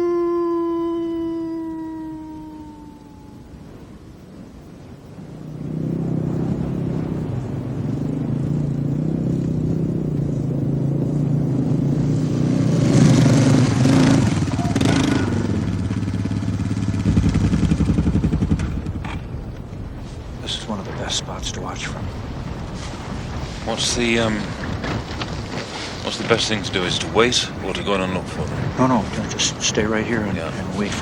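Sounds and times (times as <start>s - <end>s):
vehicle engine running: 5.6s - 19.5s.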